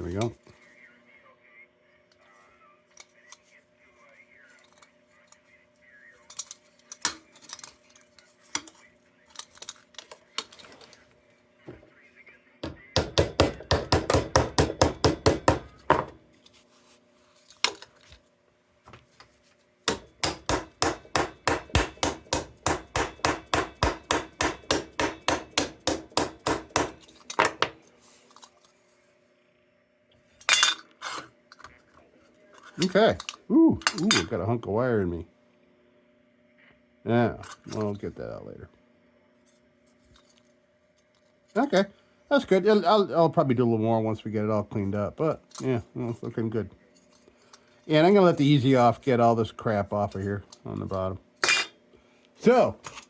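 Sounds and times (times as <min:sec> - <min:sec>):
hand tool working sheet metal: 0:19.9 - 0:27.7.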